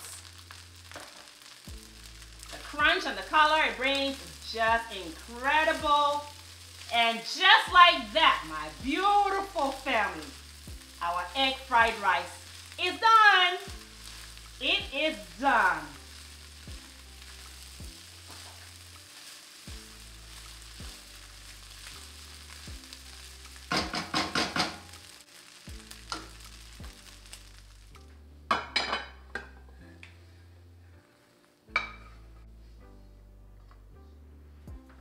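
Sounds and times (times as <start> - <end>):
rice sizzling in a wok: 0.0 - 30.2, 30.8 - 32.9
spatula scraping a wok: 16.0 - 24.9.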